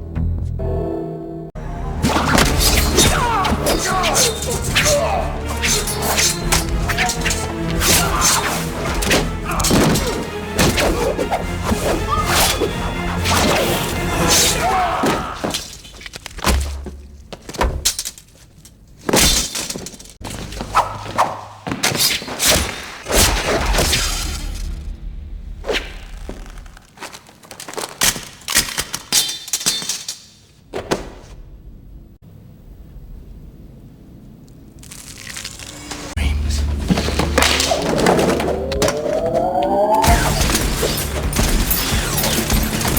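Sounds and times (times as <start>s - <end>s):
film score music: 0.0s - 15.8s, 23.1s - 27.0s, 33.3s - 42.9s
fight thuds and hits: 5.6s - 12.3s, 13.3s - 18.0s, 40.1s - 42.9s.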